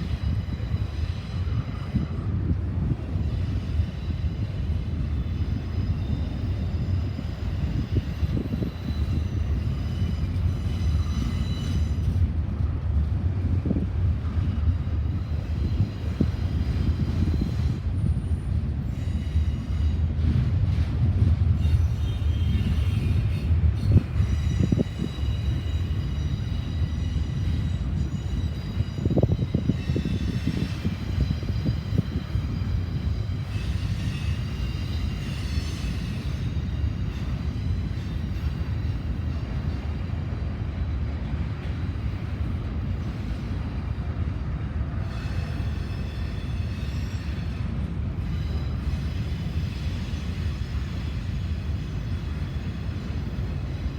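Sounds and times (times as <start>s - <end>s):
train wheels rumbling on rail: 0.0s - 53.9s
high wheel squeal: 3.1s - 12.2s, 21.6s - 40.2s, 45.0s - 53.9s.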